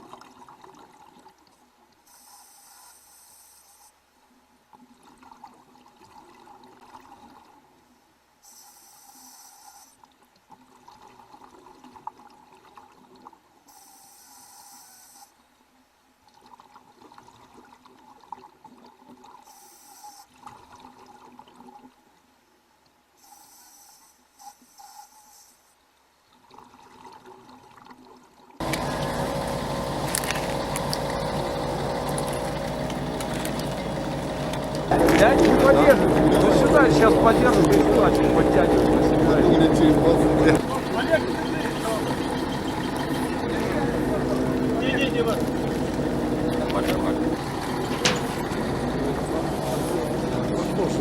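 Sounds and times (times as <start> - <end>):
regulator inhale hissing: 8.5 - 10.0, 23.2 - 25.7.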